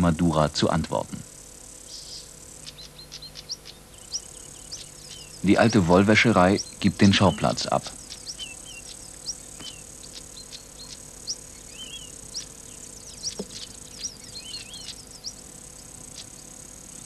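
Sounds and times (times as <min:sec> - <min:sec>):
faint steady hum: 0:00.0 - 0:17.0
small birds chirping: 0:00.0 - 0:17.0.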